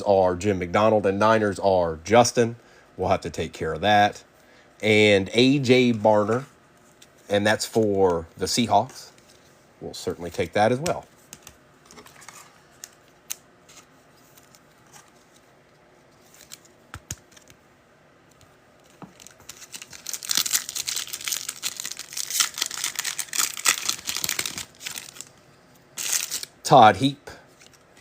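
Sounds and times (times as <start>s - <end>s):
foil wrapper crinkling: 18.8s - 25.4s, 26.0s - 26.5s.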